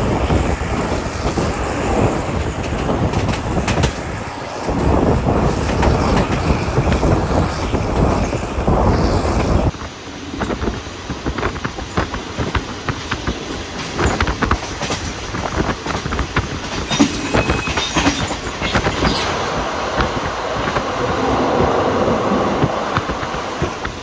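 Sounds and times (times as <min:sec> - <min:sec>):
wheels clattering over rails: 0:00.0 - 0:09.7, 0:10.4 - 0:24.0
high wheel squeal: 0:16.8 - 0:19.5.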